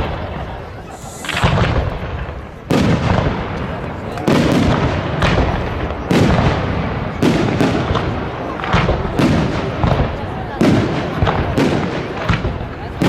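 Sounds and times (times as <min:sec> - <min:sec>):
fireworks shells bursting: 0:00.9 - 0:06.4.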